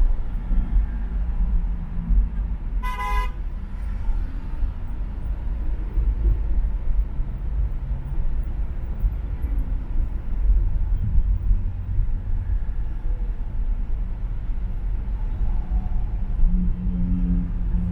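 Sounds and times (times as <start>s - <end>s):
road traffic rumble: 0.0s - 17.9s
car horn toot: 2.8s - 3.4s.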